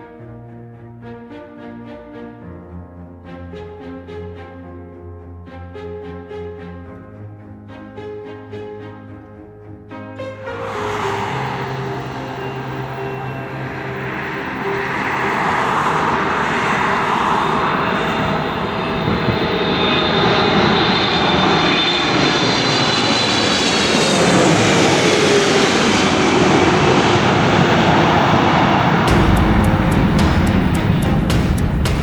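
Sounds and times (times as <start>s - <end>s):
airliner engine noise: 10.5s - 32.0s
high whine sliding down: 10.5s - 32.0s.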